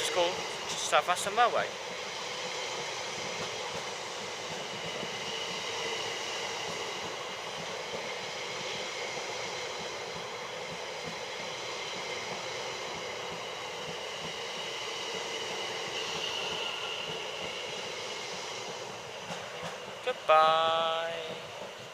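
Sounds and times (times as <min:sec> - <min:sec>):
electric train rumbling: 0:00.0 - 0:21.9.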